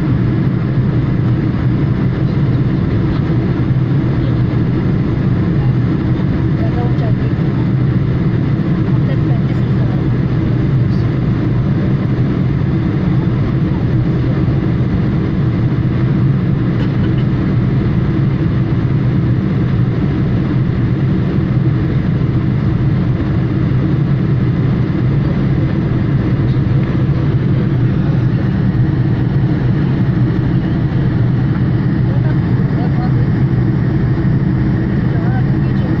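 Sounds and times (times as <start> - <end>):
jet engines droning in cabin: 0.0 - 36.0
rushing air: 24.2 - 35.1.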